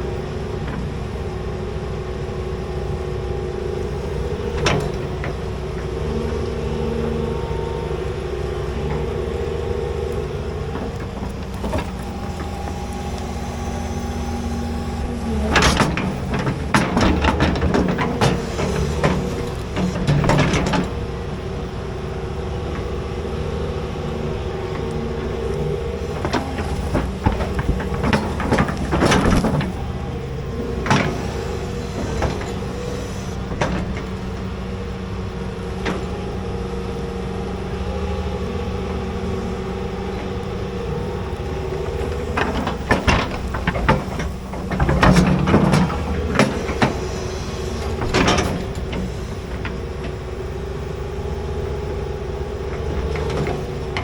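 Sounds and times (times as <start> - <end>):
excavator diesel engine running: 0.0 - 54.0
machine clanks and knocks: 4.3 - 6.5, 10.6 - 21.2, 24.7 - 34.6, 40.1 - 50.9, 51.7 - 54.0.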